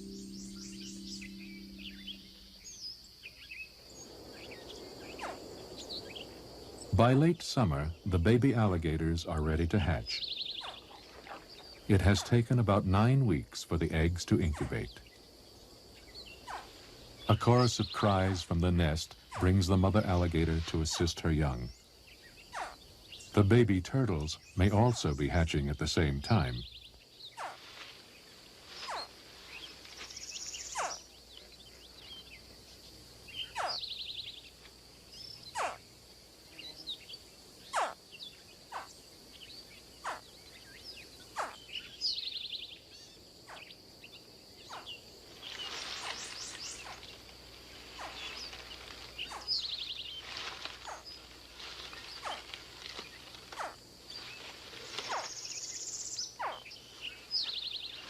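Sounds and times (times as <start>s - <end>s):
buzzy trill: 0.0s - 2.8s
high insect drone: 0.0s - 58.0s
baby alligators chirping: 9.6s - 12.5s, 30.4s - 31.1s, 33.3s - 34.4s, 35.4s - 35.8s, 37.7s - 38.0s, 40.0s - 42.4s, 43.5s - 45.1s, 45.9s - 58.0s.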